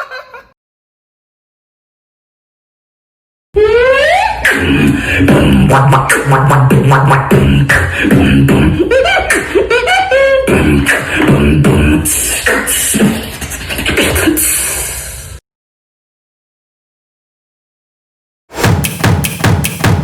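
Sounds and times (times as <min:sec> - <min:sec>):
hummed bass line: 0:03.6 - 0:09.1
beatboxing: 0:03.6 - 0:15.4, 0:18.6 - 0:20.0
pitched vocal slides: 0:03.6 - 0:15.4.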